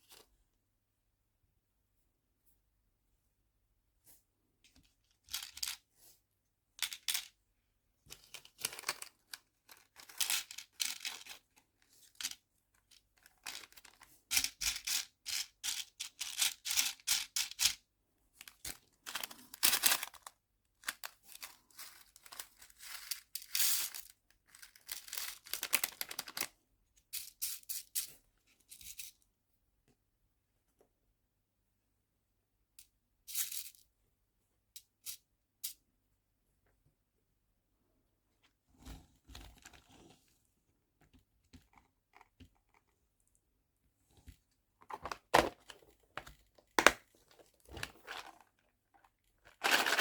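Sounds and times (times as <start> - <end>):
plastic packaging rustling: 49.5 - 50.0.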